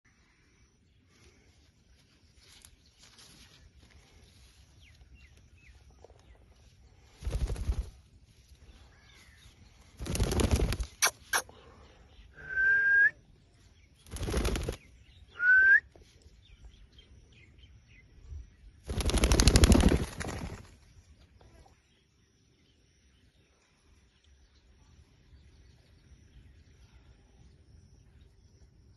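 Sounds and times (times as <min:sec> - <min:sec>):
parrot flapping wings: 0:07.2 - 0:08.1, 0:10.0 - 0:11.4, 0:14.0 - 0:14.9, 0:18.9 - 0:20.8
short rising whistles: 0:12.4 - 0:13.2, 0:15.4 - 0:16.0.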